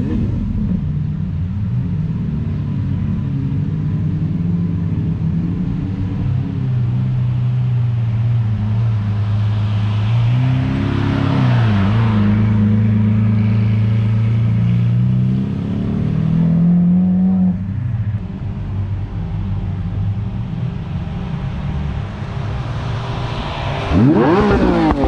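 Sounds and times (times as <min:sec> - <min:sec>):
engine revving: 0:00.0 - 0:01.0, 0:08.5 - 0:17.6, 0:20.4 - 0:25.0
sports car driving past: 0:07.1 - 0:25.0.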